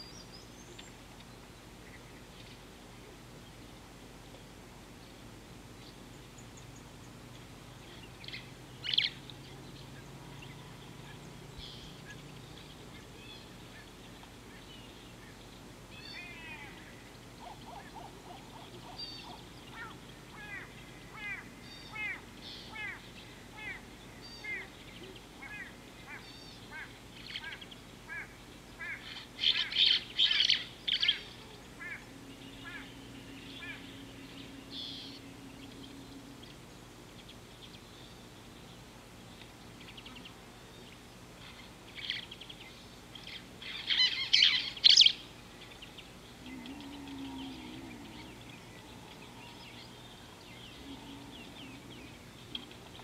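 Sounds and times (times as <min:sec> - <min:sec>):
wild birds chirping: 0:00.0 - 0:53.0.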